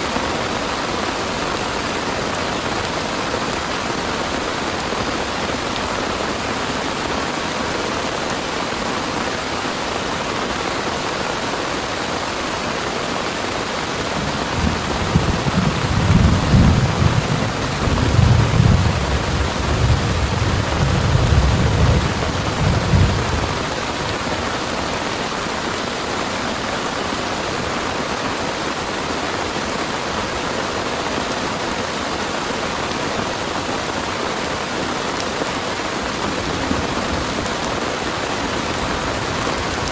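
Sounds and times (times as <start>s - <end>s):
heavy rain: 0.0s - 39.9s
thunder rumbling: 13.9s - 24.6s, 36.2s - 39.9s.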